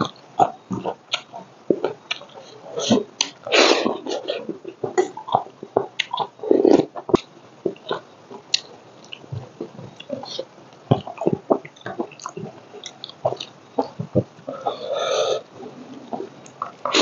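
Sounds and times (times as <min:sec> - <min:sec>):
wet chewing and lip smacking: 0:00.4 - 0:03.4, 0:04.4 - 0:14.7.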